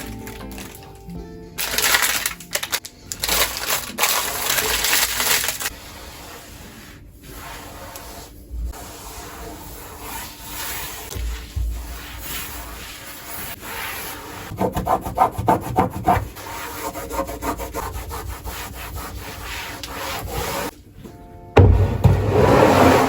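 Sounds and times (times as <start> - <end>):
soft background music: 0.0 - 4.9, 20.7 - 22.0
pantry items rustling and clattering: 0.0 - 5.7.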